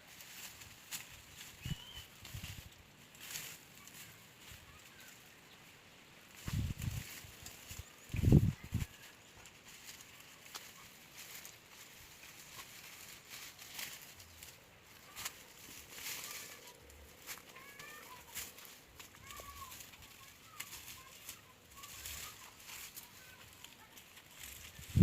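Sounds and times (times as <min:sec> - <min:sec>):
rustling swishes of weeds: 0:00.0 - 0:25.0
short bird calls: 0:01.6 - 0:02.2.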